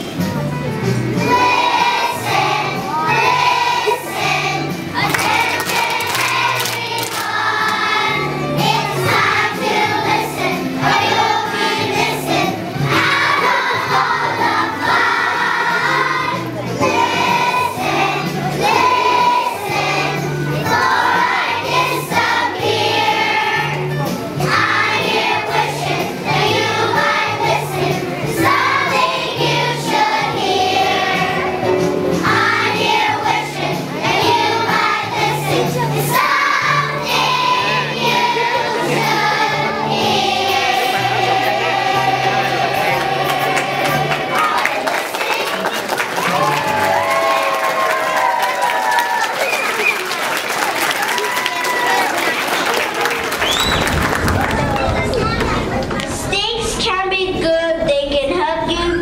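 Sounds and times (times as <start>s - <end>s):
musical accompaniment with bass: 0.0s - 45.0s
children singing together: 1.2s - 45.8s.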